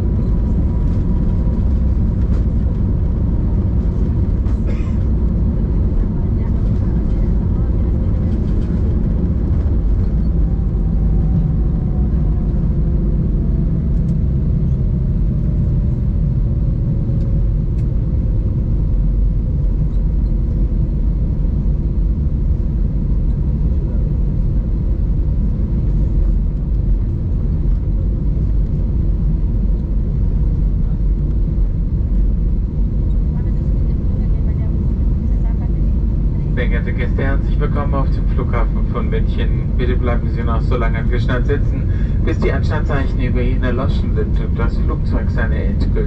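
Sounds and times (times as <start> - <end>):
jet engines and wheels rumbling: 0.0 - 46.0
jet engine whine spooling down: 7.8 - 46.0.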